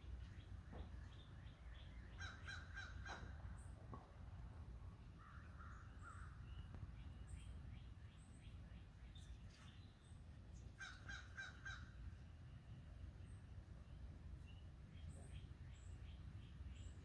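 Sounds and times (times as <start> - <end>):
distant harsh bird calls: 0.0 - 4.0, 5.0 - 17.0.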